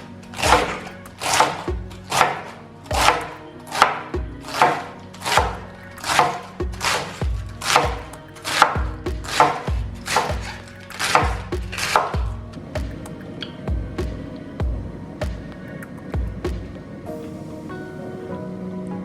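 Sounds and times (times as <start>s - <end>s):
bread dough kneaded by hand: 0.0s - 12.4s.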